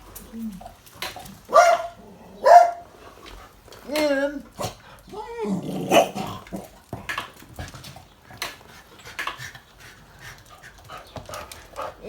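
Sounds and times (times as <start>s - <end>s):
dog panting: 7.4s - 12.0s.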